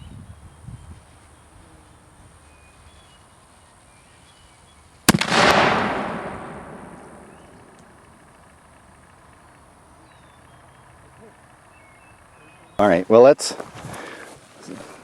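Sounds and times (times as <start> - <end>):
cannon firing: 5.1 - 8.8
rolling echo: 5.1 - 11.5.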